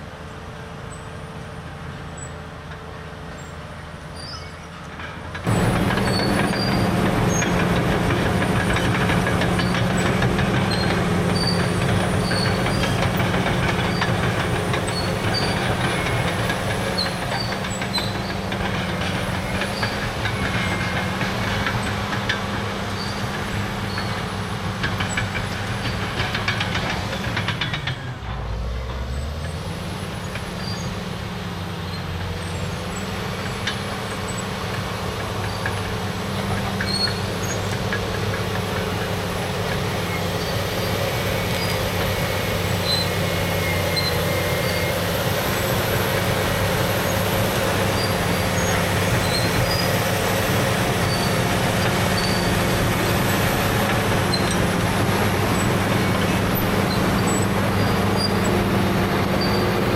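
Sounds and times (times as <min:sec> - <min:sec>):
bulldozer diesel engine drone: 0:00.0 - 0:59.9
steel track clatter: 0:04.2 - 0:59.9.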